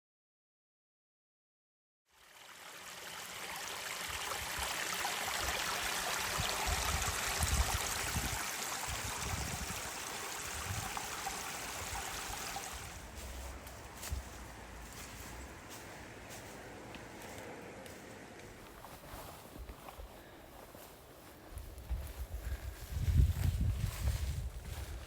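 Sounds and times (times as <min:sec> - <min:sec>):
stream flowing water: 0:02.1 - 0:15.7.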